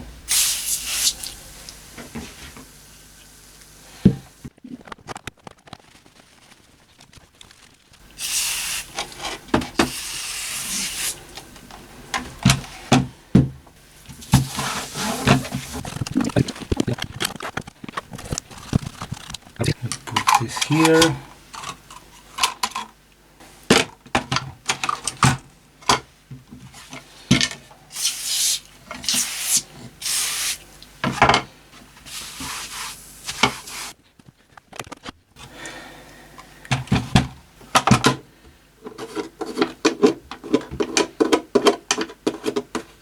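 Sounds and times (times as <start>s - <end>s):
rubbing and scrubbing strokes: 0.0s - 2.6s, 5.9s - 11.4s, 14.2s - 19.8s, 32.0s - 34.0s
clicks and knocks of parts: 15.3s - 23.0s, 34.2s - 35.2s.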